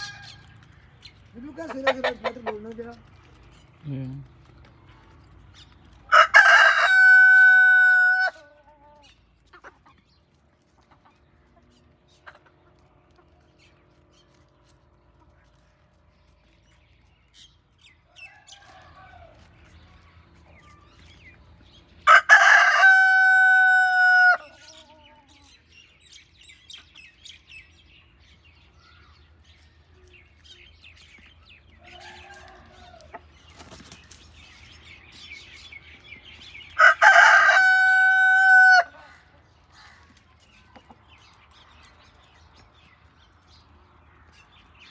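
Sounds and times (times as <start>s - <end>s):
hens clucking: 0.0s - 17.1s, 31.9s - 34.8s, 36.7s - 43.1s
rooster crowing: 6.1s - 8.4s, 22.0s - 24.7s, 36.8s - 39.1s.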